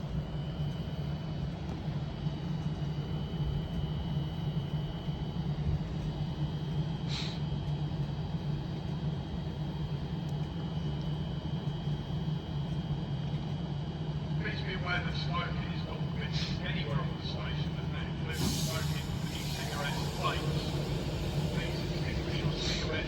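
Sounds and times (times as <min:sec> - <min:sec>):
electric train humming: 0:14.5 - 0:23.0
thin high whine: 0:18.4 - 0:23.0.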